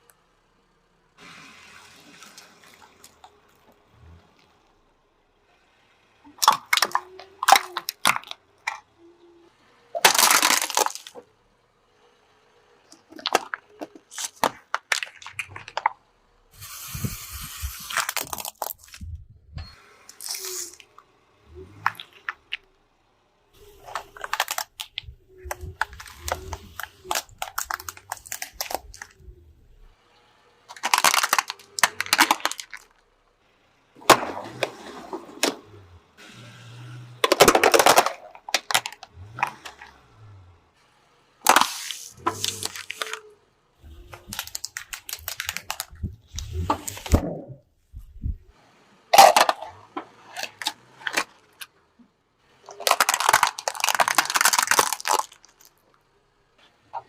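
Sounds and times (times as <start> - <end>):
objects crushed by car: 6.3 - 11.3, 12.8 - 16.5, 18.0 - 19.4, 23.6 - 30.0, 30.6 - 33.4, 34.0 - 40.7, 41.4 - 56.1.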